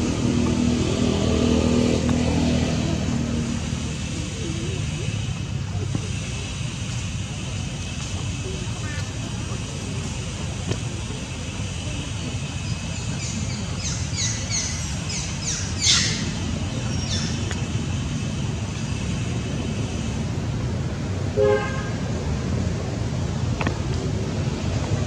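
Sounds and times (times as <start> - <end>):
traffic rumble: 0.0 - 25.0
vehicle horn toot: 21.4 - 22.0.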